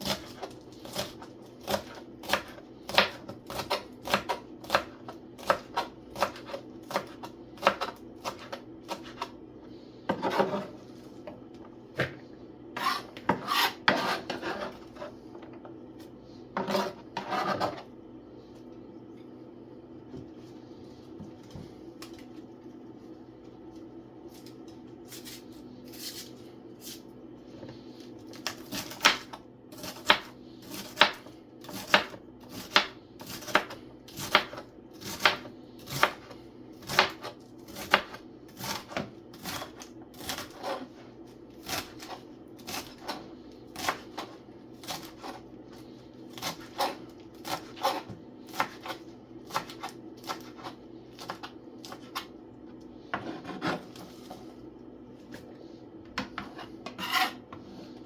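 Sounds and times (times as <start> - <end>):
knife chopping on cutting board: 0.0 - 9.3, 10.1 - 10.8, 12.8 - 15.1, 16.6 - 17.9, 28.3 - 41.0, 41.6 - 45.4, 46.3 - 52.3, 53.1 - 54.4, 56.1 - 57.8
steady low hum: 0.0 - 58.0.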